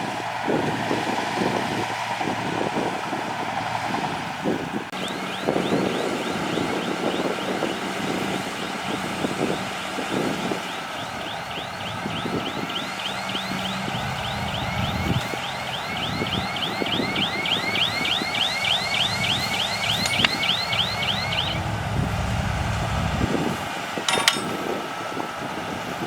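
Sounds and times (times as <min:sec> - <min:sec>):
bulldozer diesel engine running: 0:00.0 - 0:26.0
rhythmic high-pitched chirp: 0:10.7 - 0:21.6
metal knocks and clanks: 0:24.1 - 0:24.6.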